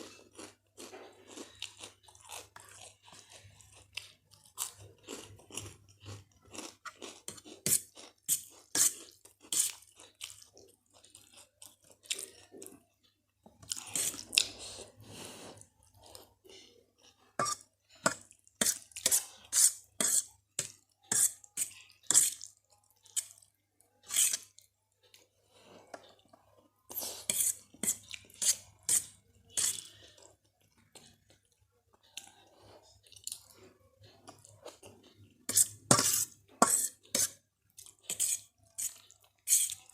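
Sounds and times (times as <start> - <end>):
cutlery clinking on a dish: 35.5 - 37.3.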